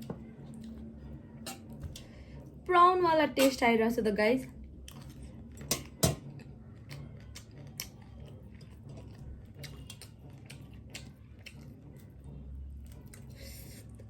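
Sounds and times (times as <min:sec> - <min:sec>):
person chewing: 0:04.8 - 0:14.0.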